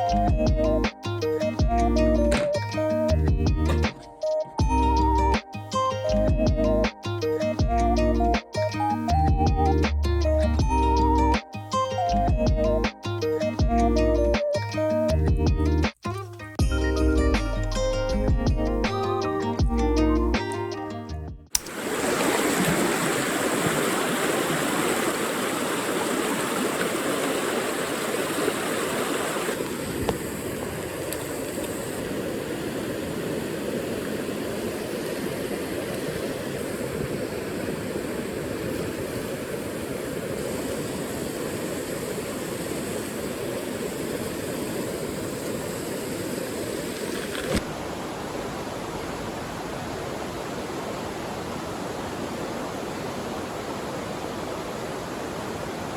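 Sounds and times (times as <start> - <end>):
stream water rushing over rocks: 21.6 - 55.9.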